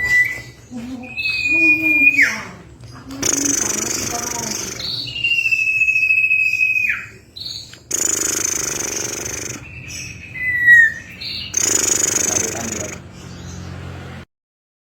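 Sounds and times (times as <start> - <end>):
bird whistling call: 0.0 - 2.4, 3.2 - 13.0
harsh bird chatter: 0.0 - 14.2
short high bird notes: 7.8 - 13.0.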